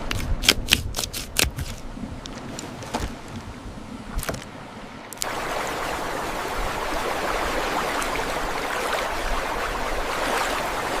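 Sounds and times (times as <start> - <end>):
water rushing: 1.7 - 11.0.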